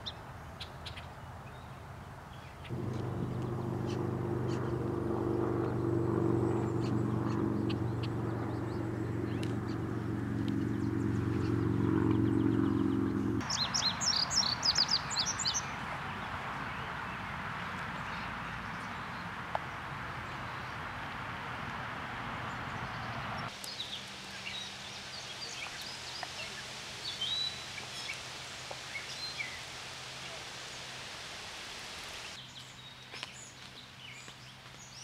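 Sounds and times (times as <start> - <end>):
small birds chirping: 0.0 - 20.9, 22.4 - 35.0
low motor hum: 2.7 - 13.4
steady hiss: 23.5 - 32.4.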